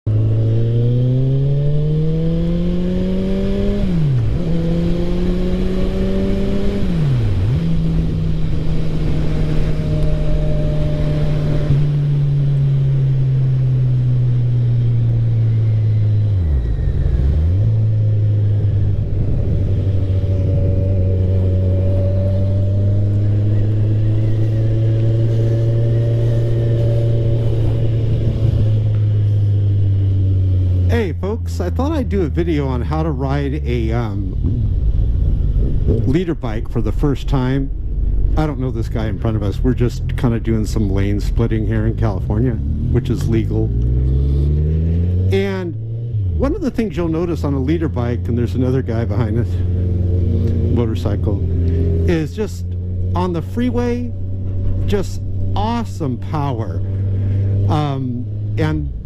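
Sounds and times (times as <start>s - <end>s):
motorcycle engine accelerating: 0.0s - 59.0s
wind rushing: 16.4s - 30.6s, 34.0s - 41.7s.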